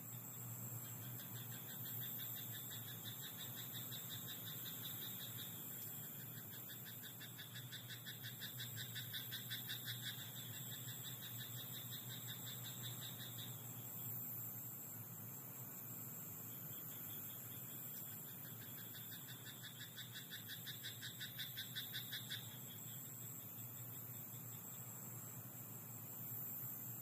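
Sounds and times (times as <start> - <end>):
frogs trilling: 0.1 - 14.2, 16.3 - 25.4
rattling frog croaks: 0.9 - 13.6, 16.7 - 24.8.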